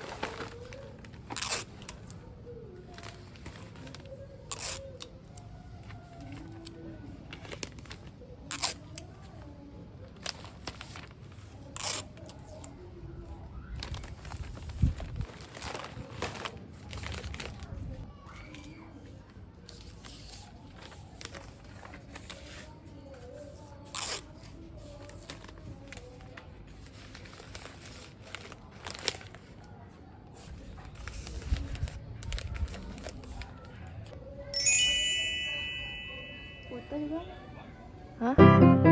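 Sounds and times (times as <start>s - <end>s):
wrapping paper crinkling: 0.0s - 2.0s, 13.6s - 18.1s, 19.9s - 22.7s, 24.4s - 29.7s, 30.4s - 33.6s
paper tearing: 1.3s - 1.8s.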